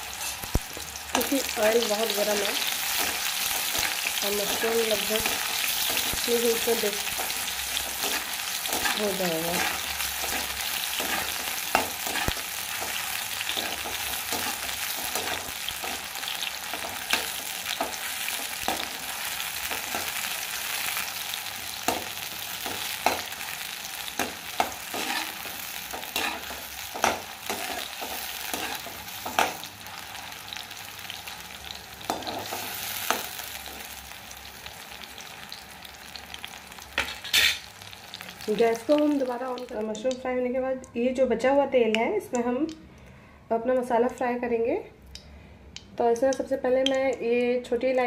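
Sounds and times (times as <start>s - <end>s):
mushrooms sizzling in hot oil: 0.0s - 40.3s.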